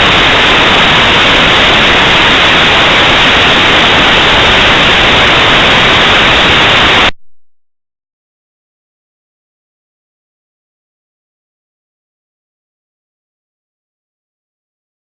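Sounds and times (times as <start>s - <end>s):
loud static hiss: 0.0s - 7.2s.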